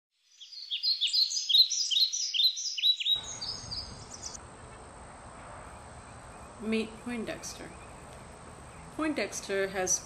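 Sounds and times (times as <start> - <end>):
songbird chirping fast: 0.2 - 4.8
outdoor background noise: 0.2 - 10.0.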